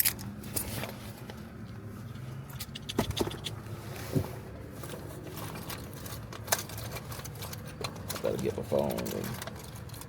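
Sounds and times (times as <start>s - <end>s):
clicks and knocks of handling: 5.3s - 10.0s.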